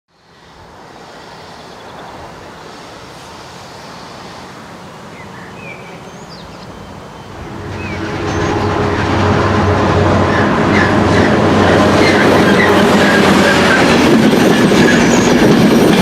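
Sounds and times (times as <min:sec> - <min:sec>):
diesel locomotive engine drone: 0:00.2 - 0:16.0
birds chirping: 0:04.9 - 0:08.7.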